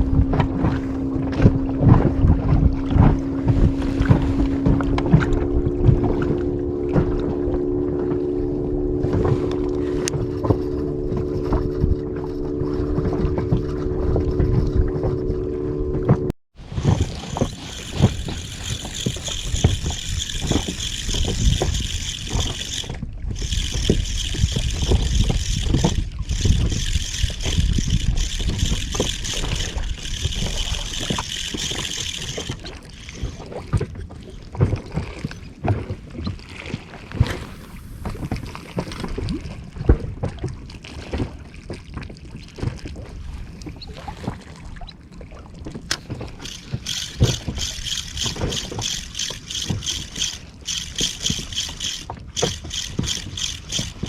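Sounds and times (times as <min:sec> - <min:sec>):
wind on microphone: 0:00.0 - 0:35.4, 0:37.1 - 0:40.7
water lapping around a boat: 0:00.0 - 0:54.0.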